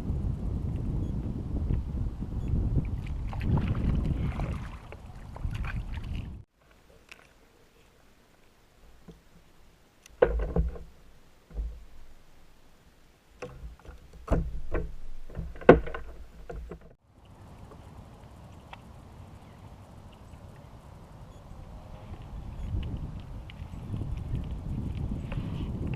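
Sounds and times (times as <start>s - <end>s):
steady low hiss: 6.5s - 23.8s
paddle knocking kayak hull: 10.2s - 12.3s, 13.4s - 17.0s.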